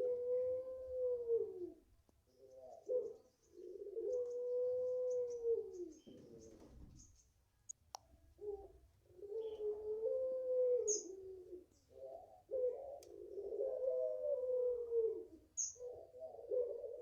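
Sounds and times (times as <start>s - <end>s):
dove cooing: 0.0s - 7.1s, 8.4s - 17.0s
small bird chirping: 5.1s - 7.4s, 10.8s - 12.0s, 15.5s - 15.9s.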